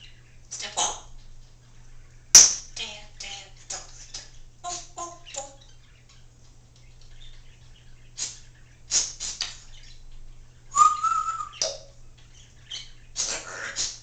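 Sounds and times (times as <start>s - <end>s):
parrot whistle: 10.7s - 11.9s
parrot squawk: 12.8s - 14.0s.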